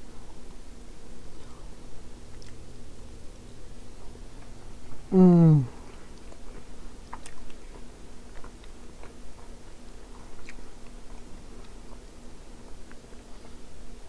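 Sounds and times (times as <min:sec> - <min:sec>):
faint low hum: 0:00.0 - 0:14.0
person chewing: 0:02.2 - 0:02.7, 0:05.6 - 0:12.0.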